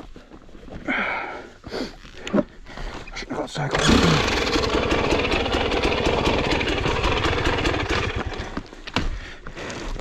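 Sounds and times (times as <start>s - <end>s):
dirt bike engine running: 3.7s - 8.7s.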